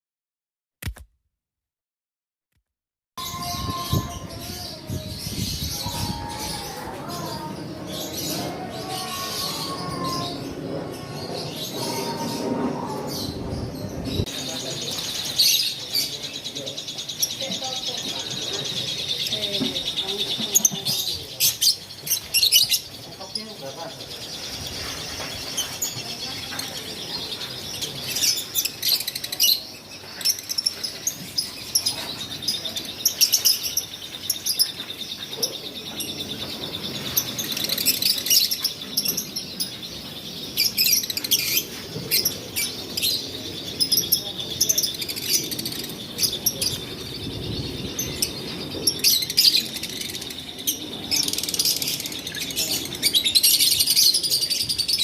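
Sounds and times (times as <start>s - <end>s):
lovebirds chirping and squawking: 3.2s - 55.0s.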